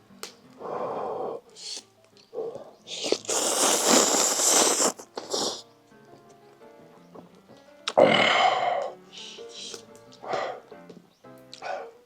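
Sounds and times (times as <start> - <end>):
faint background music: 0.0 - 12.0
hissing breaths: 0.6 - 5.6, 7.9 - 10.7, 11.6 - 12.0
man slurping noodles: 1.6 - 1.8, 2.9 - 5.6.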